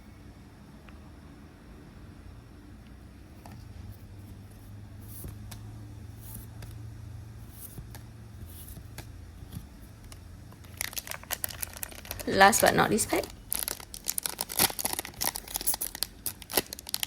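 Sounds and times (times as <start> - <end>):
trading cards rustling: 10.6 - 17.0
wrapper crinkling: 10.6 - 17.0.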